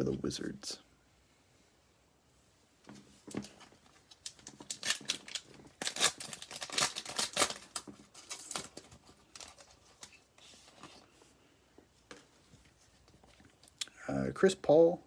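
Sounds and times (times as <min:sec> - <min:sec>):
cards rustling and clicking: 0:02.9 - 0:11.2
card pack wrapper crinkling: 0:03.4 - 0:11.0.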